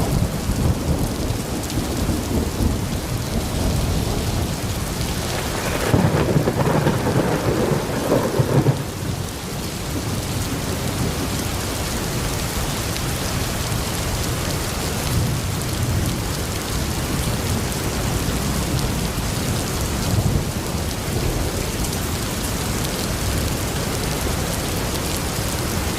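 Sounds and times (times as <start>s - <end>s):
thunder rumble: 0.0s - 11.5s
rain hissing: 0.0s - 25.9s.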